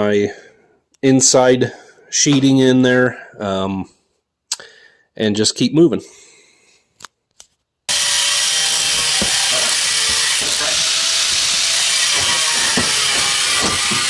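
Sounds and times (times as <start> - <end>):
power tool hissing: 7.9 - 14.0.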